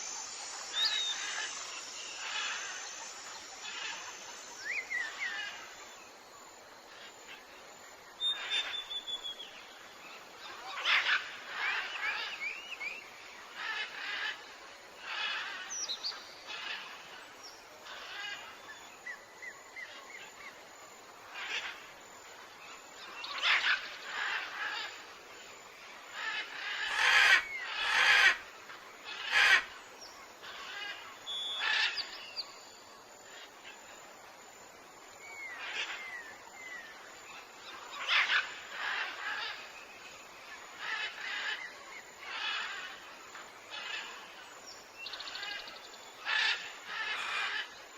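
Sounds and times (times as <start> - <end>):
birds chirping and whistling: 0.0 - 5.2.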